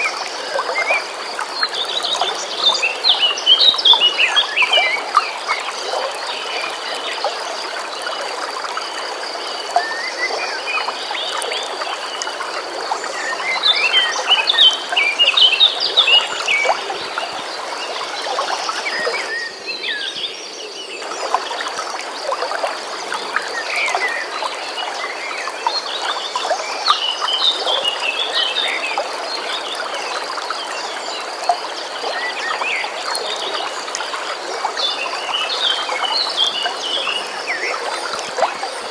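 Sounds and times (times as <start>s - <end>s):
flowing stream: 0.0s - 38.9s.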